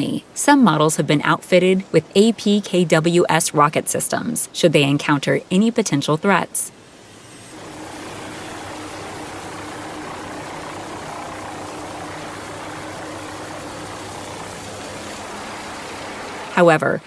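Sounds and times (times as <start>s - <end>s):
aircraft engine running: 6.8s - 17.0s.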